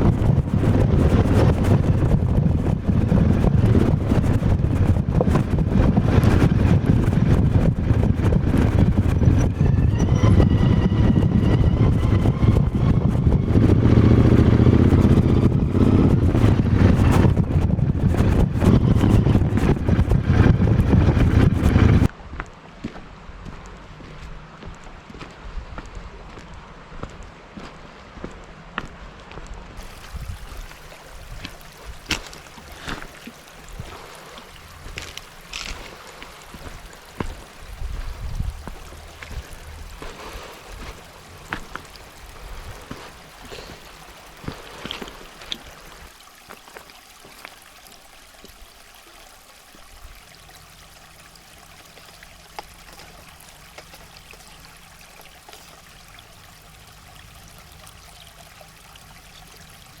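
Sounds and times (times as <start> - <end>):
river water rushing: 26.1 - 60.0.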